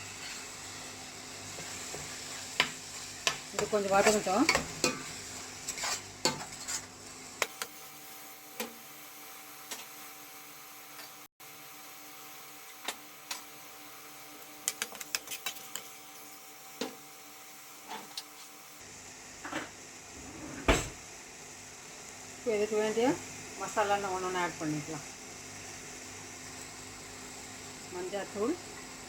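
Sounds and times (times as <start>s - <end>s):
spoon scraping a pan: 0.0s - 6.9s, 14.6s - 16.2s
faint sizzle: 0.0s - 29.0s.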